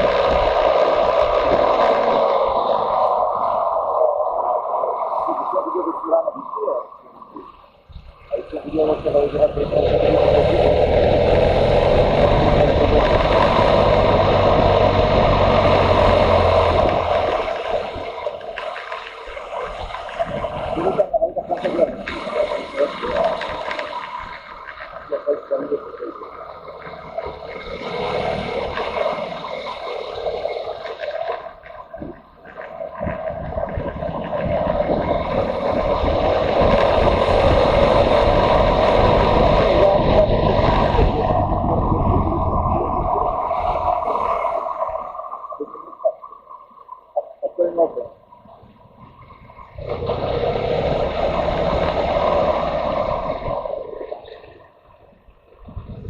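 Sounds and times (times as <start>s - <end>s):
motorcycle running: 0.0s - 4.0s, 8.0s - 25.1s, 26.3s - 44.6s, 48.8s - 53.8s
wind noise: 0.0s - 25.2s, 27.1s - 45.7s, 55.5s - 56.0s.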